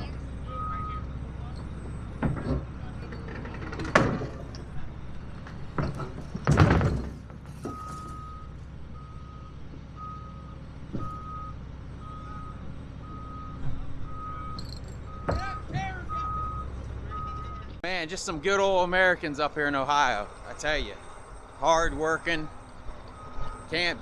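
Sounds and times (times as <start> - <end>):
backup alarm beeping: 0.0 - 6.3, 7.6 - 24.0
heavy machinery rumbling: 0.0 - 24.0
loud knocks: 2.2 - 4.5, 5.4 - 8.2, 15.1 - 16.0.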